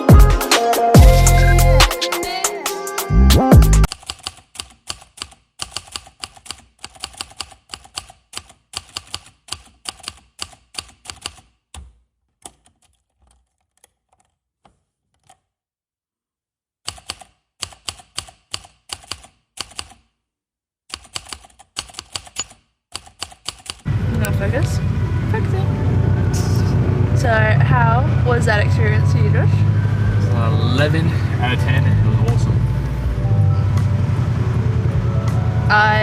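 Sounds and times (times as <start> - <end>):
quick irregular clicks: 3.9 - 11.5, 20.9 - 23.9.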